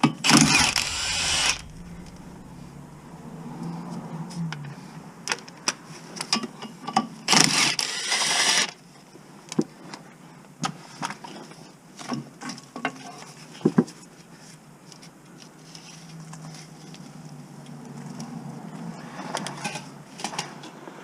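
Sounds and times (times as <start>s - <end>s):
loud noisy burst: 0.3s - 5.0s.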